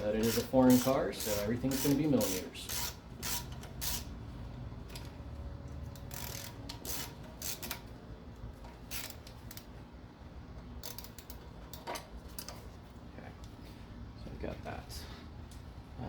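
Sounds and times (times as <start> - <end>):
socket ratchet clicking: 0.2 - 4.1, 5.9 - 7.8, 8.9 - 9.7, 10.8 - 12.5.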